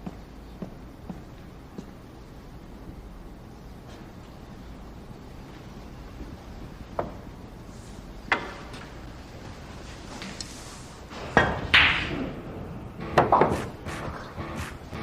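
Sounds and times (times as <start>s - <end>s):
billiard balls knocking together: 11.2s - 12.4s, 13.0s - 15.0s
cue striking ball: 11.3s - 12.4s, 13.0s - 15.0s.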